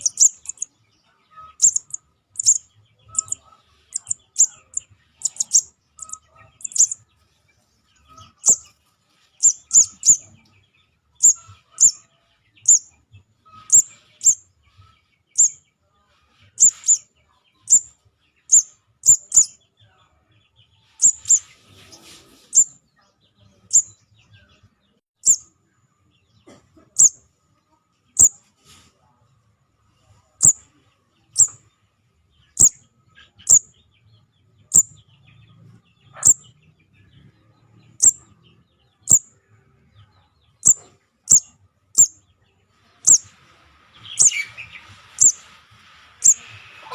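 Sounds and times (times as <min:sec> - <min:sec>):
bird chirping high: 0:00.0 - 0:00.7, 0:01.5 - 0:07.0, 0:09.4 - 0:10.3, 0:11.2 - 0:12.0, 0:12.6 - 0:12.9, 0:13.6 - 0:14.4, 0:15.4 - 0:15.6, 0:16.6 - 0:17.0, 0:18.5 - 0:19.6, 0:21.0 - 0:21.5, 0:23.7 - 0:23.9, 0:25.2 - 0:25.4, 0:27.0 - 0:27.2, 0:32.6 - 0:32.8, 0:33.4 - 0:33.7, 0:34.7 - 0:34.9, 0:36.2 - 0:36.4, 0:38.0 - 0:38.3, 0:39.0 - 0:39.3, 0:40.6 - 0:42.2, 0:43.0 - 0:43.3, 0:44.1 - 0:45.5, 0:46.2 - 0:46.9.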